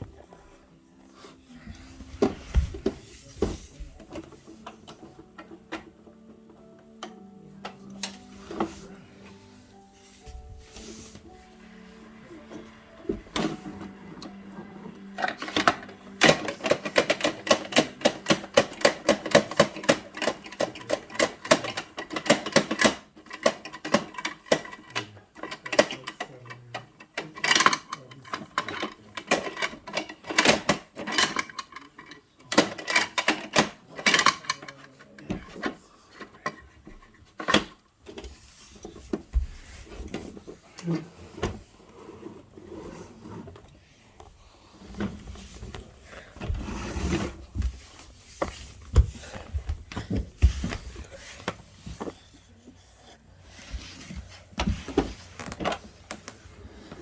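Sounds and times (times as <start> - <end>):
plastic toy clicking and rattling: 15.2 - 37.8.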